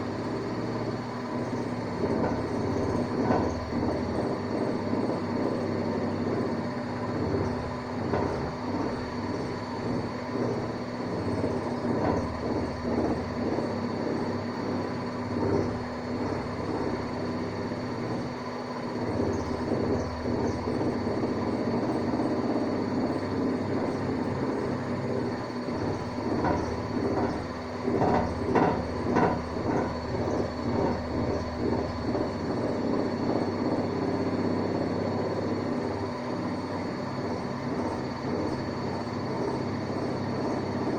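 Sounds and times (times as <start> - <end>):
washing machine spinning: 0.0 - 40.9
rattling and knocking: 25.7 - 31.7.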